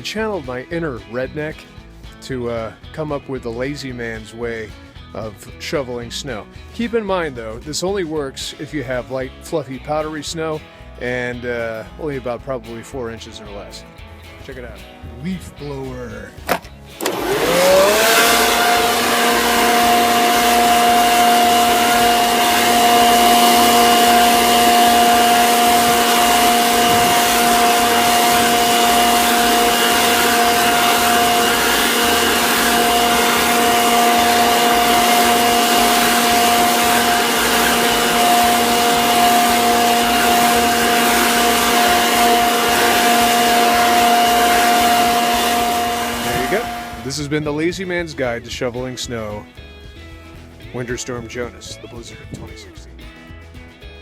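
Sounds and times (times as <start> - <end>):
leaf blower running: 16.4 - 47.4.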